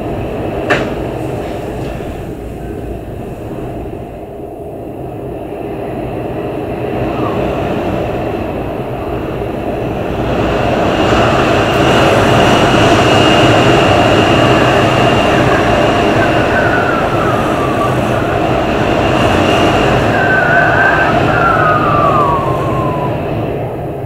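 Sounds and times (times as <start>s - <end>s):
strong wind gusting: 0.0s - 24.0s
faint high whistle: 19.3s - 23.2s.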